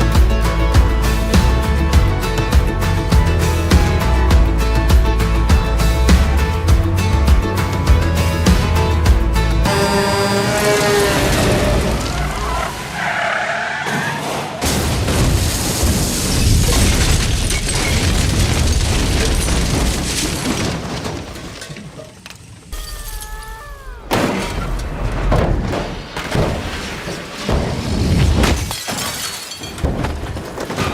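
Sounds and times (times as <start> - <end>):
music: 0.0 - 10.0
car crashing and glass shattering: 10.6 - 22.2, 24.1 - 30.9.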